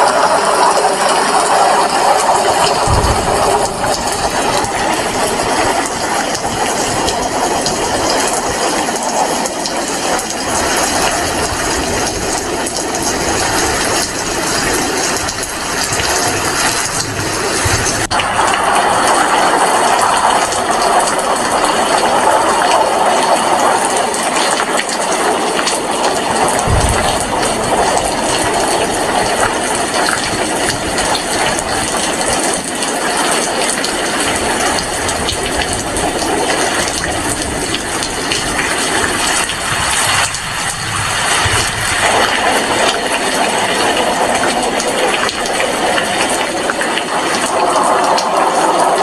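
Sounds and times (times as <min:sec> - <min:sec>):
heavy rain falling: 0:00.0 - 0:49.0
low thump: 0:02.8 - 0:04.8, 0:26.6 - 0:28.4.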